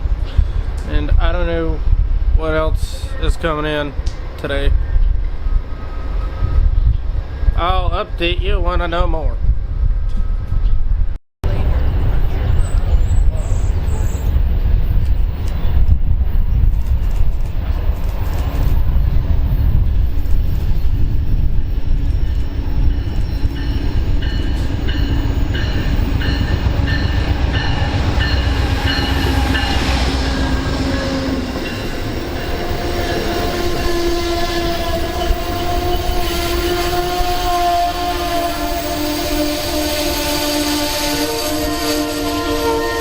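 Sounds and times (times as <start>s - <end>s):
train rumbling past: 9.6s - 43.0s
train horn: 24.5s - 43.0s.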